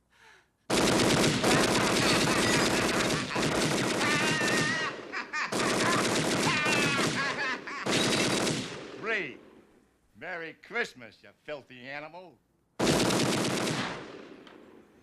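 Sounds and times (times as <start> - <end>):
submachine gun rapid bursts: 0.7 - 4.9, 5.5 - 8.8, 12.8 - 14.0
person crying out: 1.5 - 7.9.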